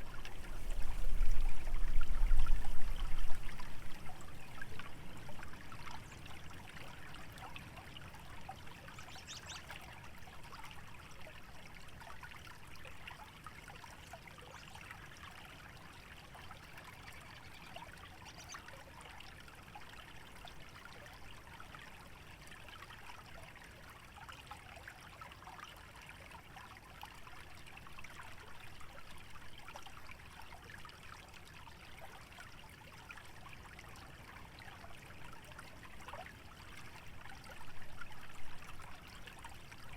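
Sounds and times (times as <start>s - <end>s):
low wind rumble: 0.0s - 4.8s
stream trickling and bubbling: 0.0s - 39.9s.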